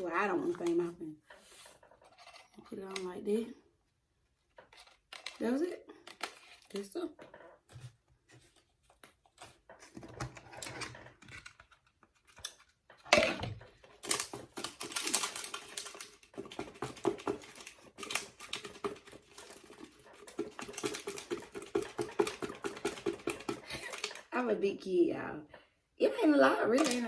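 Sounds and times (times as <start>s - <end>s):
plastic containers clattering: 12.4s - 24.3s.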